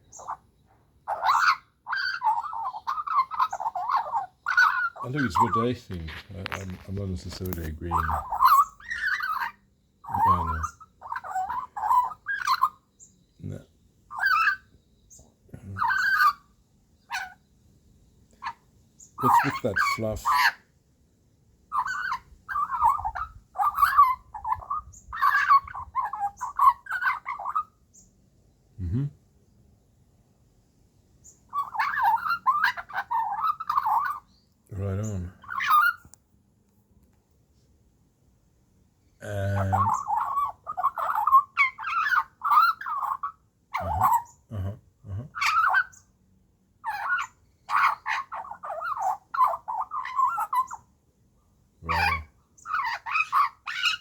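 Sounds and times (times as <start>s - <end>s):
magpie squawky warbles: 0.1s - 0.4s, 1.0s - 12.9s, 13.5s - 14.7s, 15.6s - 16.5s, 17.1s - 17.4s, 18.4s - 20.7s, 21.7s - 27.7s, 31.5s - 34.3s, 35.0s - 36.1s, 39.2s - 44.4s, 45.3s - 46.0s, 46.8s - 50.9s, 51.8s - 54.0s.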